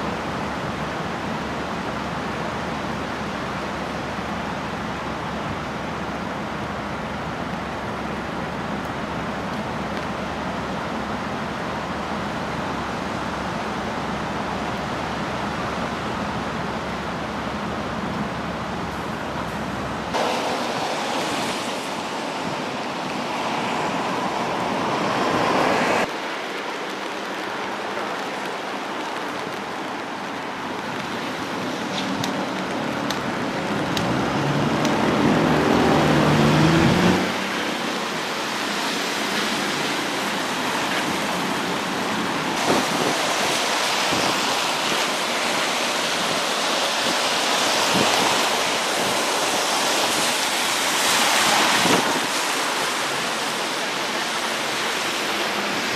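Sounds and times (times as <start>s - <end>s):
cars driving past: 32.2s - 43.7s
car engine accelerating: 33.7s - 37.5s.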